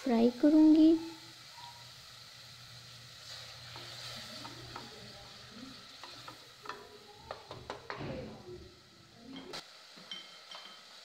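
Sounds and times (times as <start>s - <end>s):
masala sizzling in oil: 0.0s - 11.0s
wooden spoon knocking pot: 6.0s - 8.0s.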